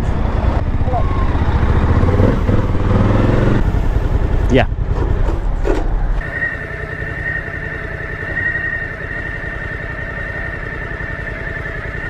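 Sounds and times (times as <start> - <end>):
motorcycle engine idling: 0.2 - 12.0
high-pitched whine: 6.1 - 12.0.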